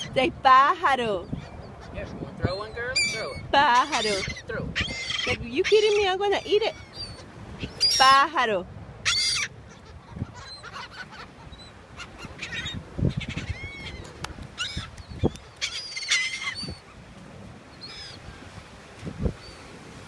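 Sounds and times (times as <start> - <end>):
flock of birds calling: 1.2 - 8.4, 9.0 - 17.0, 17.8 - 18.6.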